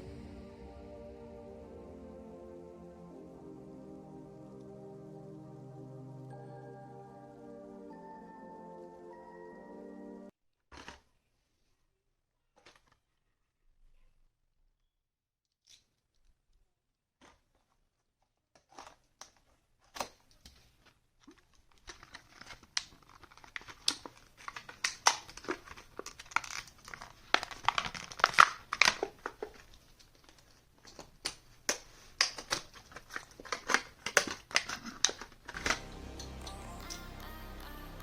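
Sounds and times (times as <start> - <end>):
music: 0.0 - 10.3, 35.5 - 38.0
packaging crinkling and tearing: 18.6 - 35.5.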